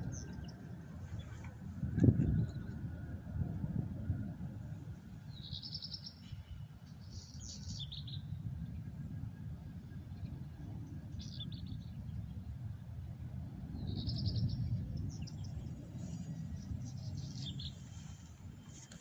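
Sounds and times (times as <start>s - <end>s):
songbird singing: 0.0s - 2.8s, 5.2s - 8.4s, 11.0s - 12.5s, 13.7s - 19.0s.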